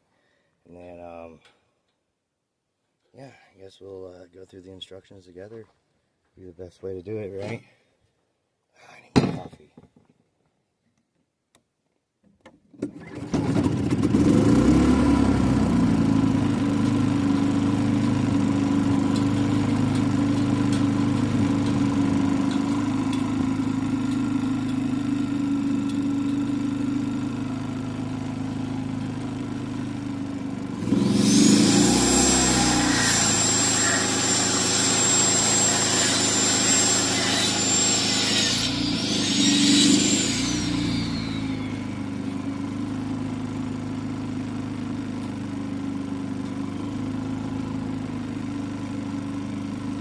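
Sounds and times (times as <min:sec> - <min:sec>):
small gasoline engine running: 0:12.9 - 0:50.0
high whine: 0:31.1 - 0:42.6.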